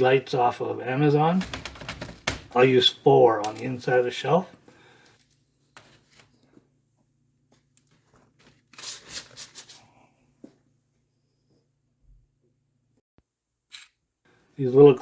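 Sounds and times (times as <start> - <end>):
faint steady hum: 0.0 - 8.6
rustling and scraping: 5.1 - 6.7, 7.6 - 9.9.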